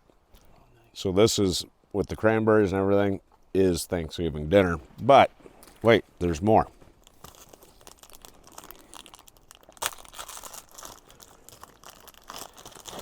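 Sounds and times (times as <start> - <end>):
plastic packaging crinkling: 7.0 - 13.0.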